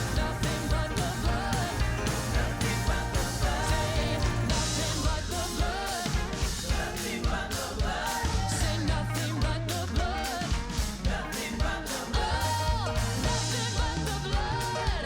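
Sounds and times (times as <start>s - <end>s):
band with drums and bass: 0.0s - 15.0s
person singing: 0.0s - 15.0s.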